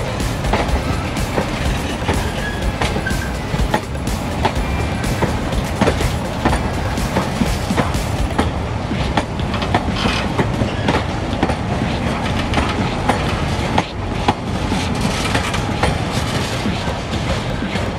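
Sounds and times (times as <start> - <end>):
train carriages rumbling past: 0.0 - 17.9
wheels clacking over rails: 0.0 - 17.9.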